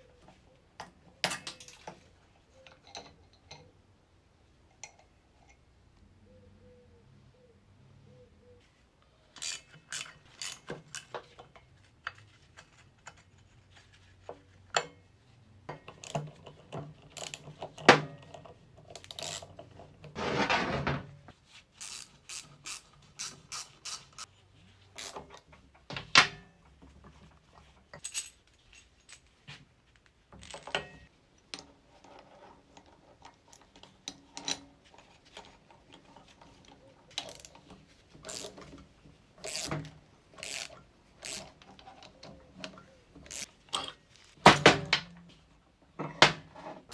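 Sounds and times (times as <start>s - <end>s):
metal tools clinking and knocking: 0.8s - 3.7s, 9.4s - 13.8s, 25.0s - 29.6s, 30.4s - 45.4s.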